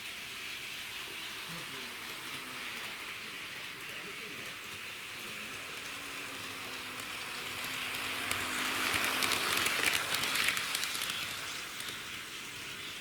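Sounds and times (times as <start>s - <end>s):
model train wheels on rails: 0.0s - 13.0s.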